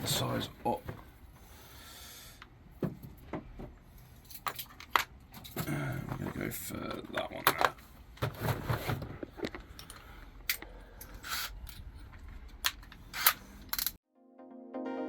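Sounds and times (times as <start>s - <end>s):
tools clicking and knocking: 9.4s - 14.0s.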